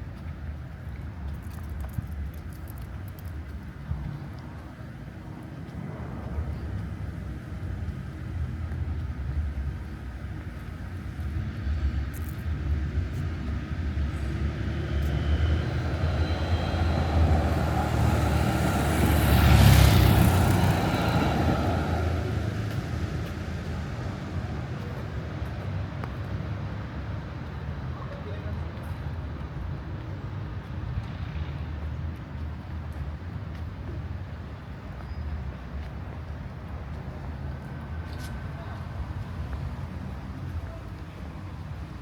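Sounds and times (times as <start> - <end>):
low traffic rumble: 0.0 - 42.0
vehicle passing by: 13.5 - 25.4.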